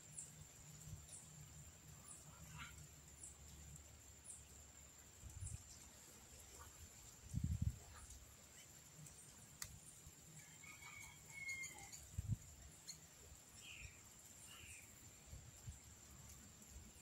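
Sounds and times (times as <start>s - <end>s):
faint bird chirps: 10.4s - 15.7s.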